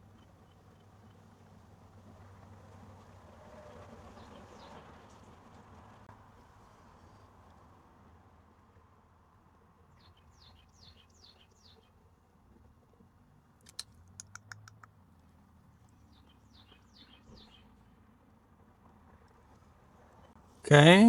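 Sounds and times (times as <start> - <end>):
bird chirping: 10.0 - 11.9, 13.7 - 14.9, 15.8 - 17.8
keyboard or mouse clicks: 13.6 - 15.0.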